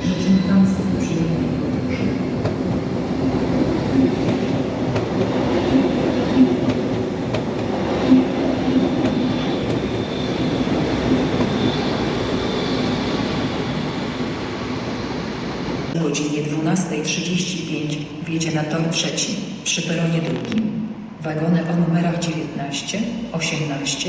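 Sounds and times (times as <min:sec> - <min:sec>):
train rumbling: 0:00.0 - 0:16.0
high wheel squeal: 0:09.4 - 0:13.4.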